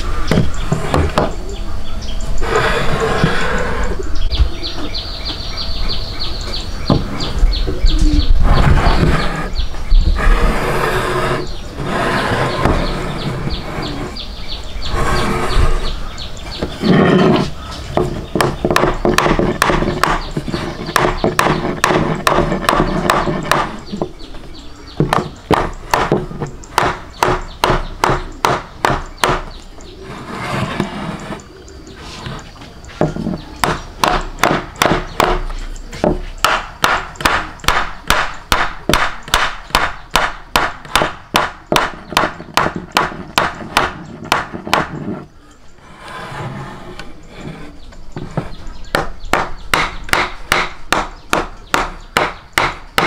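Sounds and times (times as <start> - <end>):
sharp rapid knocks: 18.0 - 24.1, 25.0 - 29.5, 33.0 - 35.4, 36.0 - 45.0, 48.2 - 53.0.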